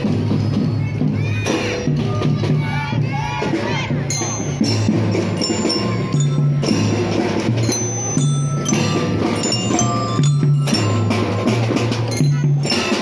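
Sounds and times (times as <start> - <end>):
drum strokes: 0.0 - 13.0
marching drum band playing: 0.0 - 13.0
ringing mallet bell notes: 4.1 - 13.0.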